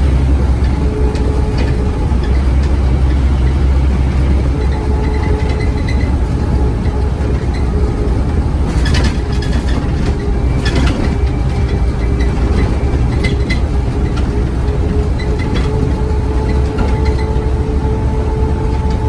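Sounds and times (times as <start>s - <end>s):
bus diesel engine rumbling: 0.0s - 19.0s.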